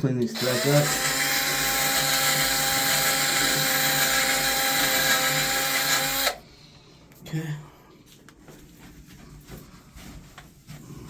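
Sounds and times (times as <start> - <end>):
small power tool running: 0.4 - 6.4.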